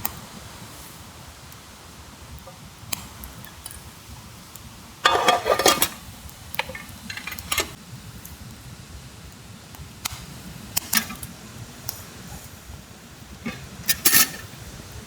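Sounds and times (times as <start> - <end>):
metal cookware clattering: 5.0 - 7.8, 10.9 - 11.3, 13.4 - 14.6.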